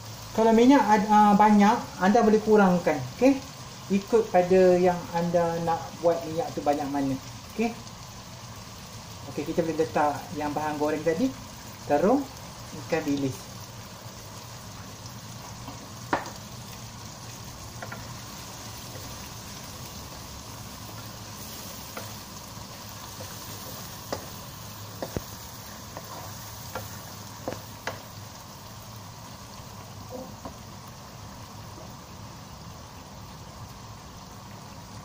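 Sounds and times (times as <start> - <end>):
food sizzling in a wok: 0.0 - 35.0
wooden spatula knocking pan: 15.4 - 16.4, 23.1 - 28.1.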